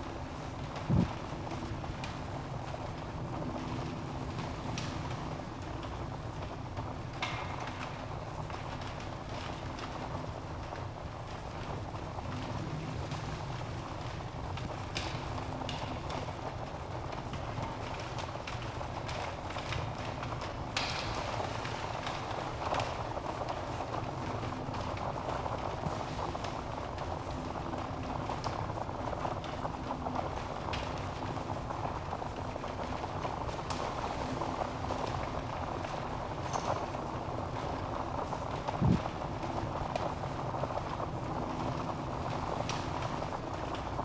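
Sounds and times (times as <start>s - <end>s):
logs crackling and popping: 0.6s - 44.0s
fire flames hissing: 21.1s - 44.0s.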